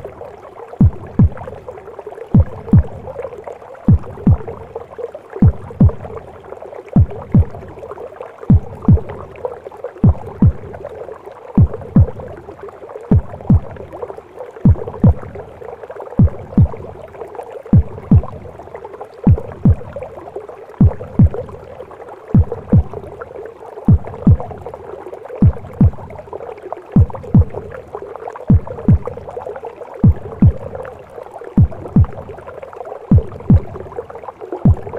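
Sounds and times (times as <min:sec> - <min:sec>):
heartbeat double thump: 0:00.8 - 0:01.6, 0:02.3 - 0:03.1, 0:03.9 - 0:04.7, 0:05.4 - 0:06.2, 0:07.0 - 0:07.8, 0:08.5 - 0:09.3, 0:10.0 - 0:10.8, 0:11.6 - 0:12.3, 0:13.1 - 0:13.9, 0:14.6 - 0:15.4, 0:16.2 - 0:16.9, 0:17.8 - 0:18.5, 0:19.3 - 0:20.0, 0:20.8 - 0:21.6, 0:22.4 - 0:23.1, 0:23.9 - 0:24.7, 0:25.4 - 0:26.1, 0:27.0 - 0:27.7, 0:28.5 - 0:29.3, 0:30.0 - 0:30.8, 0:31.6 - 0:32.3, 0:33.1 - 0:33.9, 0:34.6 - 0:34.9.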